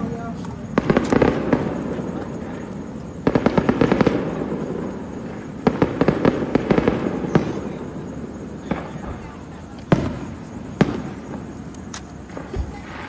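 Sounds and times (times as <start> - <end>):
fireworks crackling bangs: 0.8 - 2.0, 3.2 - 7.8.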